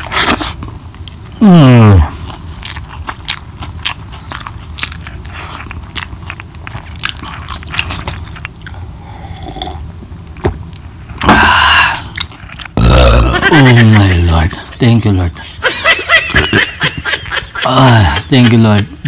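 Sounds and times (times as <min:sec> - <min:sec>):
wet chewing and smacking: 0:02.1 - 0:08.8, 0:12.0 - 0:12.8.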